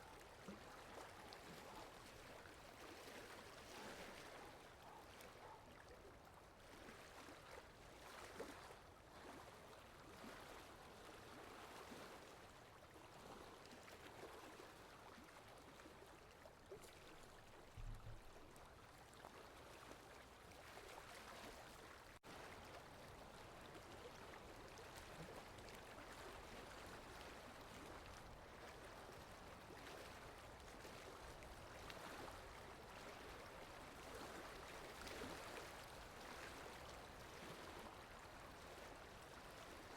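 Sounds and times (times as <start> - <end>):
soft low thump: 17.8 - 18.4.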